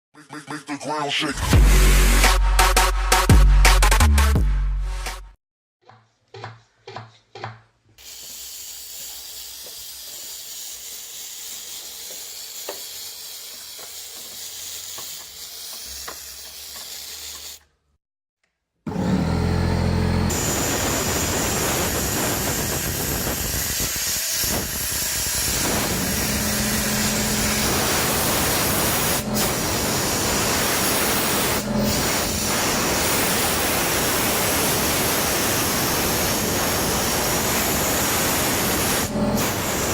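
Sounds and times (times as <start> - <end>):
steam cleaner hissing: 8.0 - 17.6, 20.3 - 39.9.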